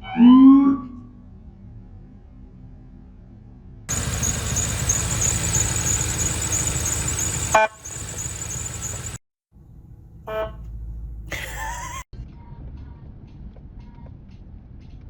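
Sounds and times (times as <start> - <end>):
car engine and road noise: 3.9 - 9.2
car horn toot: 3.9 - 9.2.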